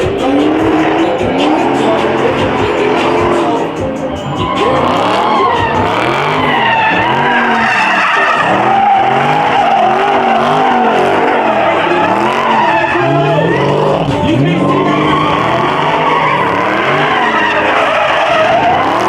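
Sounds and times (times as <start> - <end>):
car engine revving: 0.0 - 19.0
tire squeal: 0.0 - 19.0.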